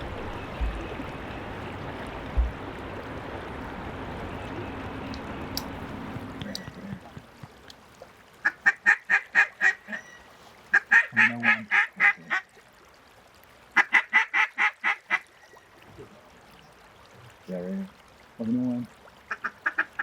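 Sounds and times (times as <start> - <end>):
duck call quacks: 10.7 - 12.4.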